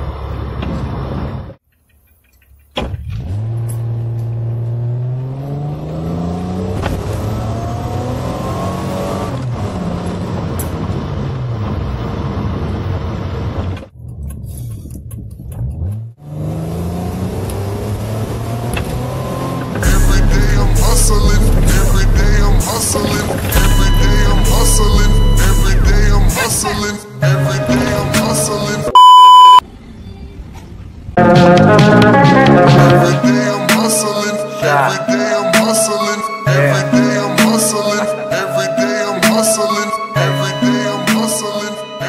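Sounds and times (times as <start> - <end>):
car engine accelerating: 3.0 - 13.6, 15.4 - 26.4.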